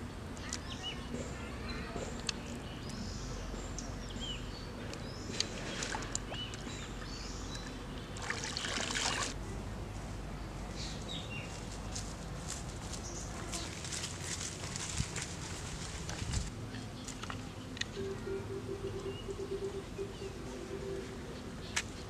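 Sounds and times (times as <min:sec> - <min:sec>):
steady low hum: 0:00.0 - 0:22.0
bird chirps: 0:17.0 - 0:22.0.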